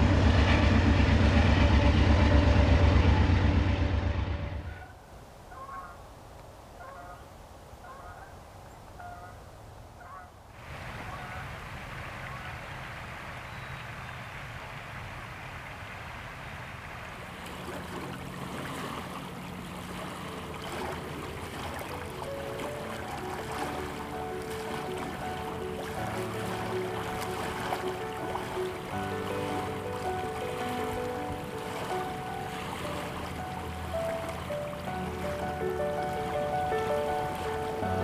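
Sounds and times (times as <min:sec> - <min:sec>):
waterfowl honking: 0:04.6 - 0:06.0, 0:06.8 - 0:08.4, 0:09.0 - 0:09.4, 0:10.0 - 0:12.7, 0:17.4 - 0:38.0
flowing water rushing: 0:10.5 - 0:38.0.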